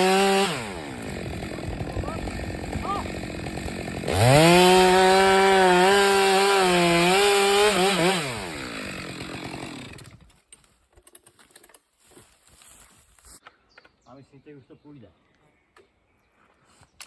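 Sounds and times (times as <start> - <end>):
chainsaw revving: 0.0 - 10.3.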